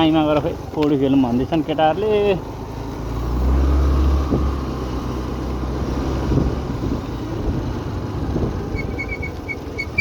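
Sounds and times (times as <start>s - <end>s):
road noise: 0.0s - 10.0s
scooter engine hum: 0.0s - 10.0s
wind buffeting microphone: 6.1s - 9.3s.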